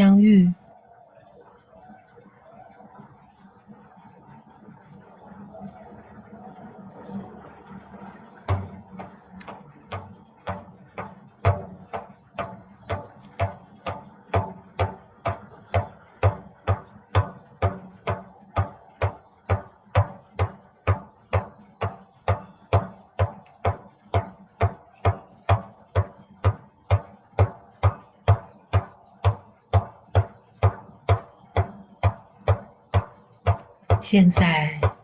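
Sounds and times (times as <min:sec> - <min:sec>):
frame drum beating: 0:08.4 - 0:35.0.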